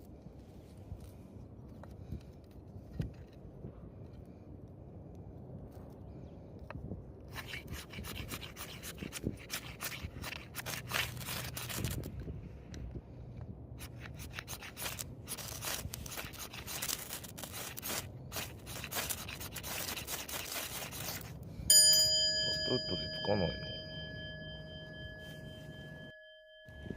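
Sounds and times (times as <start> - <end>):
hard material scraping and rasping: 7.3 - 12.2, 13.8 - 21.5.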